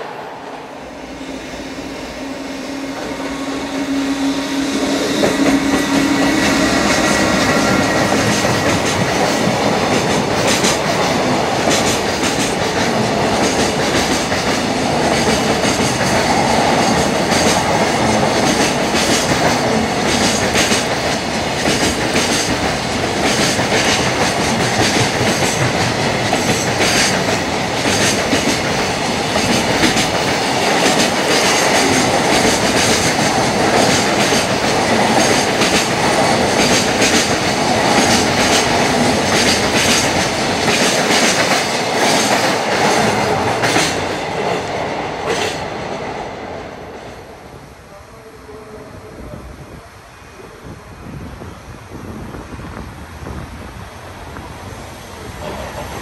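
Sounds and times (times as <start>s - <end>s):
steel wheels rumbling on rail: 0.0s - 47.9s, 48.9s - 56.0s
wheels clacking over rail joints: 4.9s - 45.7s.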